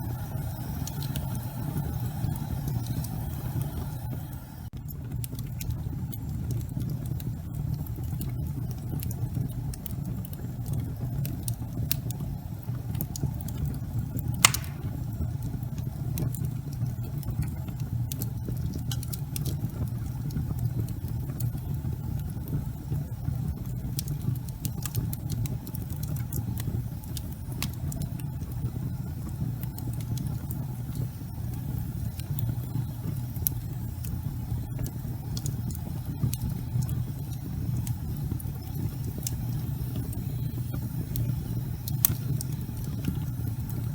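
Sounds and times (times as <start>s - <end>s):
fire crackling: 0.0s - 43.9s
fire roaring in fireplace: 0.0s - 43.9s
loud fire pop: 14.4s - 15.0s.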